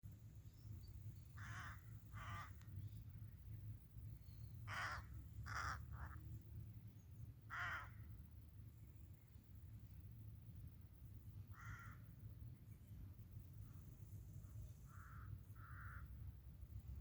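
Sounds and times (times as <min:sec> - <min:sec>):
steady low rumble: 0:00.0 - 0:17.0
crow cawing: 0:01.4 - 0:02.6, 0:04.6 - 0:06.2, 0:07.5 - 0:08.0, 0:11.5 - 0:12.1, 0:14.9 - 0:16.2.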